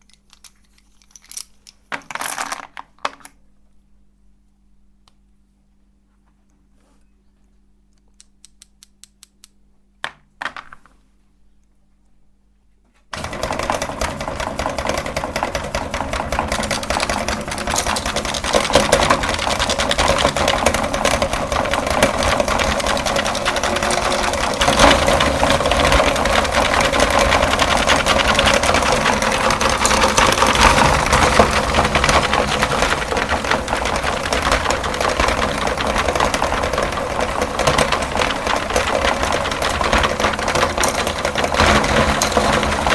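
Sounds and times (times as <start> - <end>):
electric grinder crackling: 13.2 - 42.9.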